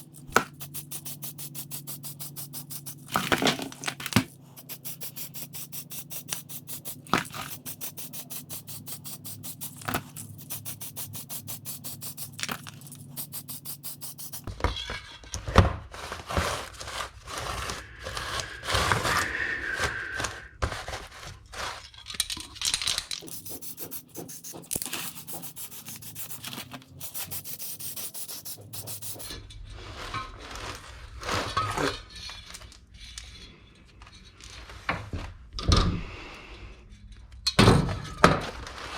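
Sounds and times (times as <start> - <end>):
rubbing and scraping on chain: 0.0 - 14.5, 22.6 - 29.4.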